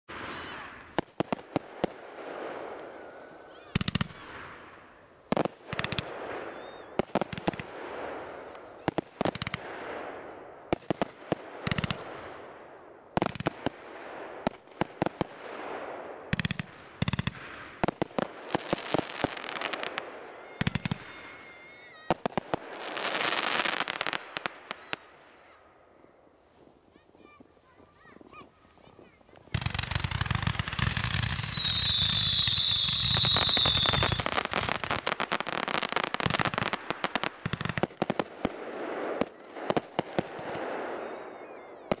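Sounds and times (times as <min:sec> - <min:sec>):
fireworks hissing: 0:00.1 - 0:09.1, 0:27.7 - 0:38.1
fireworks bangs and crackles: 0:00.1 - 0:25.6, 0:26.4 - 0:42.0.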